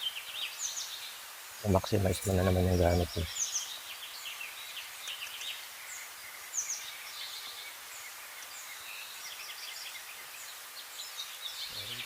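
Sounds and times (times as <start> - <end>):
outdoor ambience hiss: 0.0 - 12.0
birds chirping: 1.6 - 3.7.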